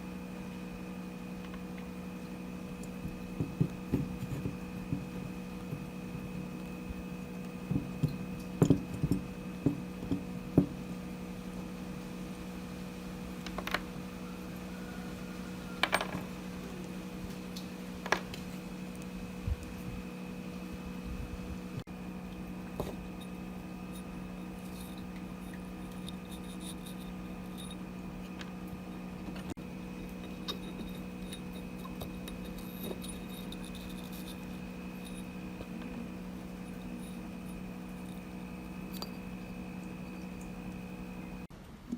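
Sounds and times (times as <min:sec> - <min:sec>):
steady hum: 0:00.0 - 0:41.9
metal parts clicking and tapping: 0:15.8 - 0:16.2
small parts clicking and tapping: 0:29.2 - 0:39.4.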